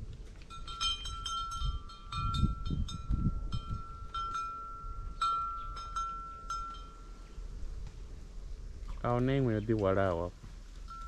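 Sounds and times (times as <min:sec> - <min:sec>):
low rumbling: 0:00.0 - 0:11.0
cow bell clanking: 0:00.5 - 0:07.2.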